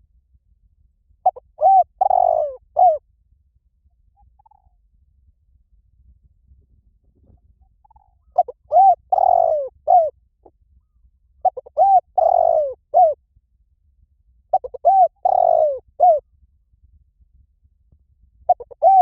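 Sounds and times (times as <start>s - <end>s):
dove cooing: 1.2s - 3.0s, 7.8s - 10.1s, 11.4s - 13.2s, 14.5s - 16.2s, 18.5s - 19.0s.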